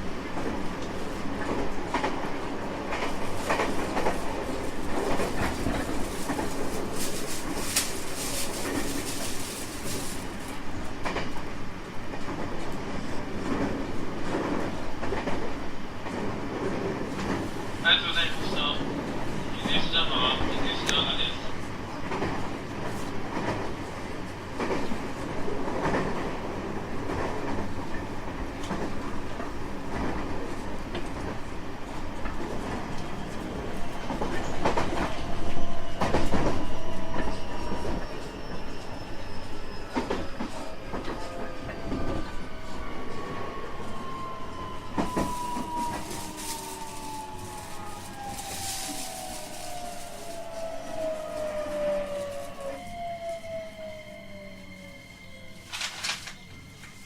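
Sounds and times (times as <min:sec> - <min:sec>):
wheels rumbling on rail: 0:00.0 - 0:57.0
faint whining tones: 0:32.9 - 0:57.0.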